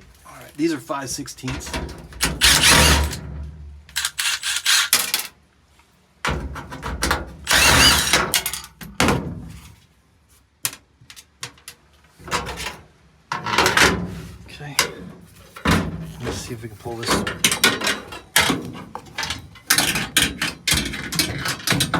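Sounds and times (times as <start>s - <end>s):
sharp metallic clicks: 2.2s - 3.2s, 3.9s - 5.3s, 7.5s - 8.6s
tool noise burst: 2.2s - 3.3s, 3.9s - 5.3s, 7.5s - 8.6s.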